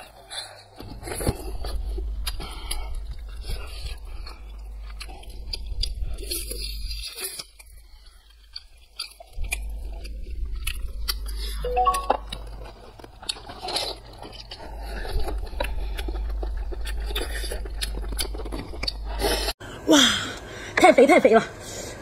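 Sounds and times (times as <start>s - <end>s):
wet chewing and mouth smacks: 0.1s - 19.5s
brief pitched tone: 11.6s - 12.4s.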